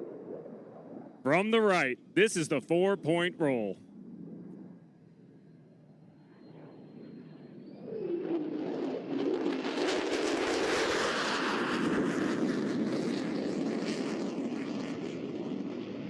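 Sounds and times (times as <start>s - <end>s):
jet flying past roaring: 0.0s - 16.0s.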